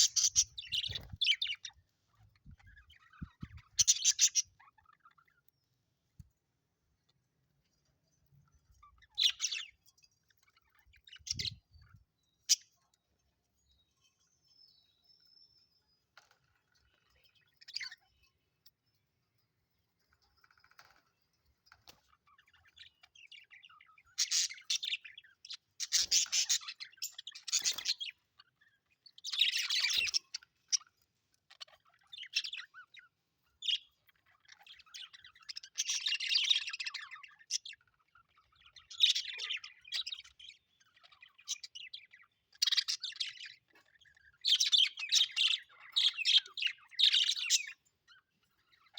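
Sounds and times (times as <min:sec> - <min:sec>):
budgerigars chirping: 0:00.0 - 0:05.5, 0:08.8 - 0:11.8, 0:21.8 - 0:48.9.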